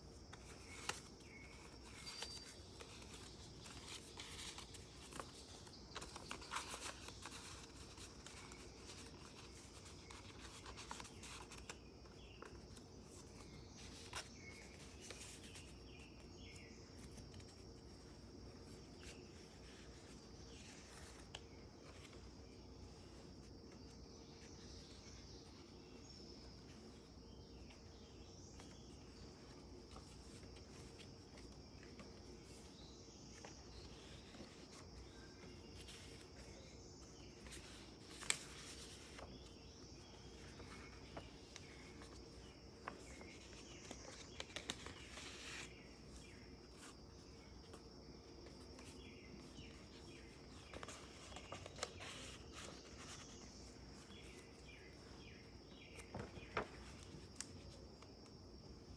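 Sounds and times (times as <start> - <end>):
paper rustling: 0.0 - 58.9
light taps of pages turning: 27.4 - 47.0, 47.6 - 54.8, 55.8 - 58.4.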